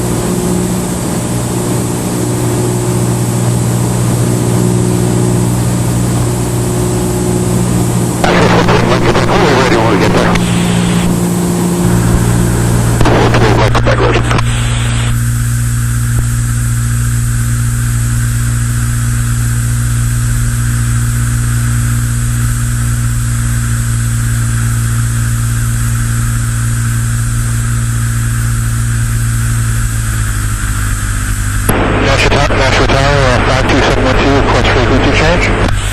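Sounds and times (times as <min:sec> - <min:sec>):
rush of noise: 0:00.0 - 0:17.1, 0:29.5 - 0:35.9
airplane engine and propeller droning: 0:00.0 - 0:35.9.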